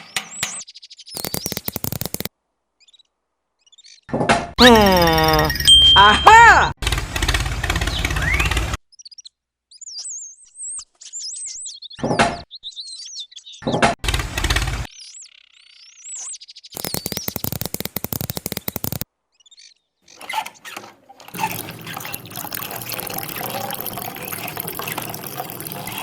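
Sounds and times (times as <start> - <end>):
rapid clicking rattle: 16.8 - 19.0
water pump running: 21.4 - 26.0.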